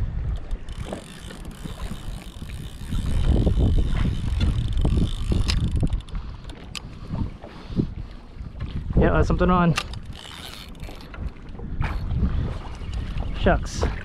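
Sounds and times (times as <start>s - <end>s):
wind buffeting microphone: 0.0s - 14.0s
small clicks: 0.3s - 6.9s.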